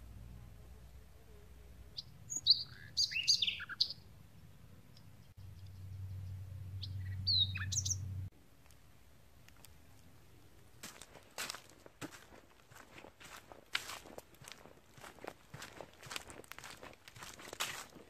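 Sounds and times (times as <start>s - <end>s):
low steady rumble: 0.0s - 2.7s, 4.0s - 10.8s
songbird chirping: 0.0s - 18.0s.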